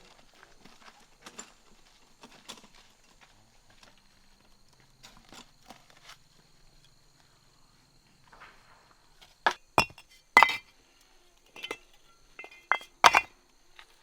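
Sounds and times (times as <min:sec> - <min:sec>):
hard objects clinking and knocking: 0:09.5 - 0:10.6, 0:11.6 - 0:11.8, 0:12.4 - 0:13.3.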